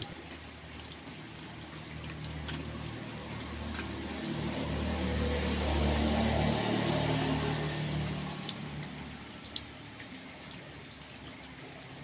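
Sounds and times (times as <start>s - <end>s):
rain falling: 0.0s - 12.0s
vehicle engine humming: 1.9s - 10.4s
drops ticking: 8.1s - 10.2s.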